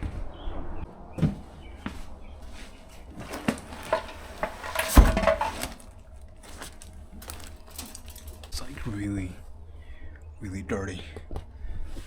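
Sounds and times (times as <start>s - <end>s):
seat being dragged: 3.2s - 5.8s
knocks and clatter: 3.2s - 6.0s.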